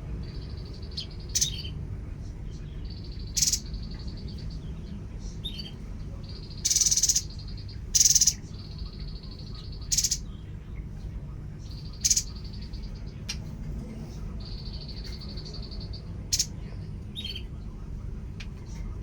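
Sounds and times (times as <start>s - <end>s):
bird harsh buzzing rattles: 3.3s - 3.8s, 6.4s - 8.4s, 9.8s - 10.2s, 12.0s - 12.4s.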